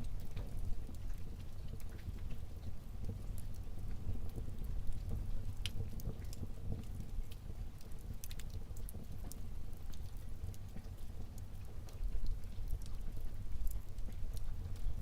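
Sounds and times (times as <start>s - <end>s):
low rumble of flames: 0.0s - 15.0s
wood fire pops and crackles: 0.0s - 15.0s.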